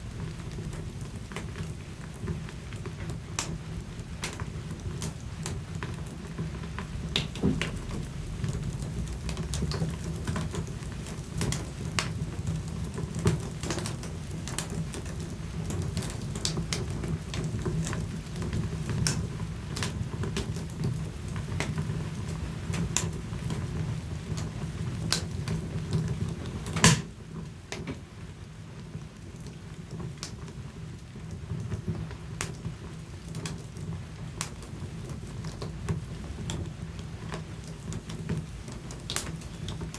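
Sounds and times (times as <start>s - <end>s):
low rumble of flames: 0.0s - 39.9s
wood fire crackling and snapping: 0.0s - 39.9s
loud pop from fire: 26.8s - 27.1s.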